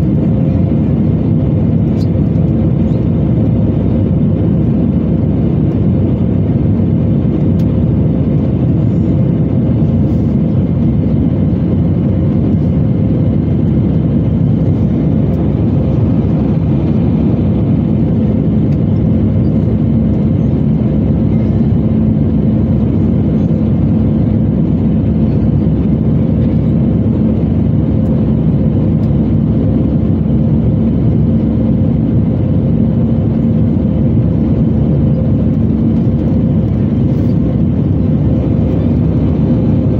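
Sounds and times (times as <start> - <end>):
aircraft cabin engine rumble: 0.0 - 39.9
steady humming tones: 0.0 - 39.9.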